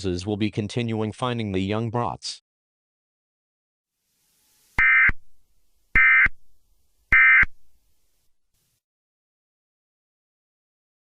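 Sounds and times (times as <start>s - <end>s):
electronic warbling bursts: 4.2s - 5.2s.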